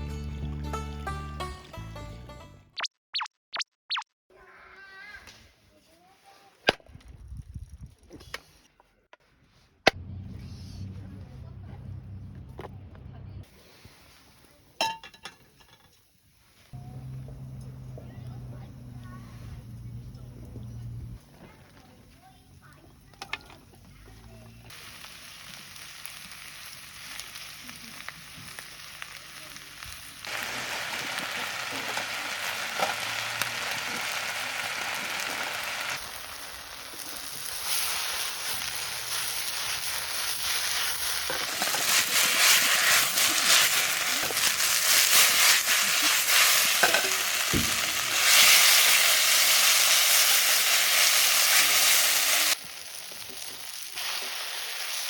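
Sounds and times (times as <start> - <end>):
food sizzling in a pan: 24.7 - 55.0
stirring food: 38.5 - 47.2.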